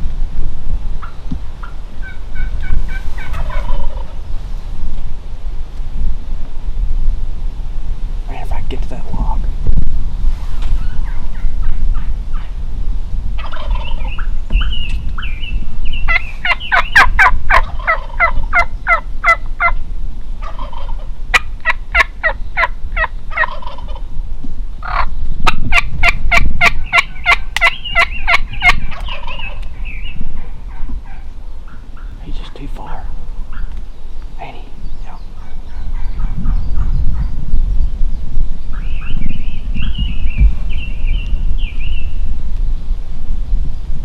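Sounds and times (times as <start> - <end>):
low wind rumble: 0.0 - 44.0
turkeys gobbling and yelping: 1.0 - 4.3, 10.7 - 12.6, 13.4 - 19.8, 20.4 - 24.1, 24.8 - 37.3.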